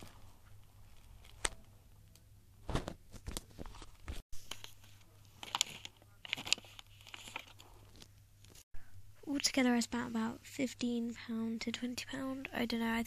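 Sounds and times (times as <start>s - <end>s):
crinkling: 0.0s - 8.6s.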